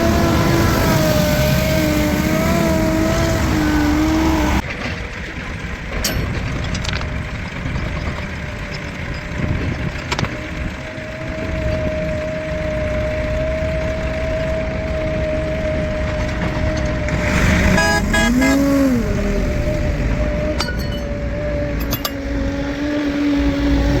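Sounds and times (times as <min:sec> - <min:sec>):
heavy machinery engine whine: 0:00.0 - 0:24.0
sharp metallic clicks: 0:21.8 - 0:22.3.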